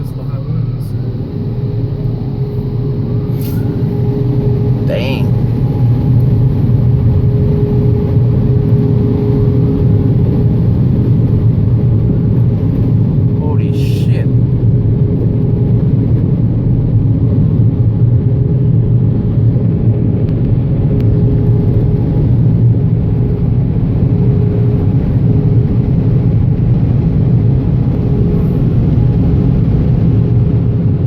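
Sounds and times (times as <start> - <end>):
car engine and road noise: 0.0 - 31.0
faint hum: 0.0 - 31.0.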